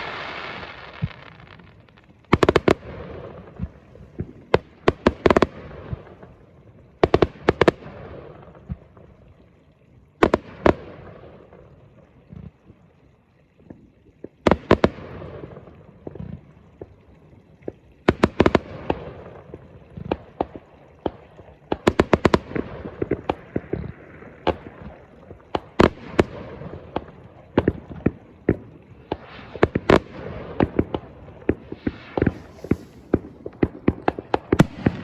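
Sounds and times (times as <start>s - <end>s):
fireworks crackling: 0.0s - 6.3s, 18.0s - 35.0s
fireworks bangs: 29.2s - 35.0s.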